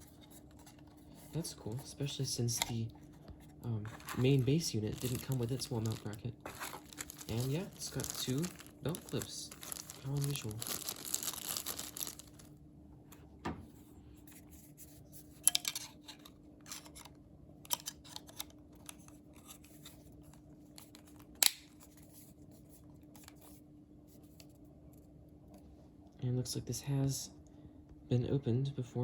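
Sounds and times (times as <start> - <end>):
faint steady hum: 0.0 - 29.0
plastic packaging crinkling: 3.6 - 12.6.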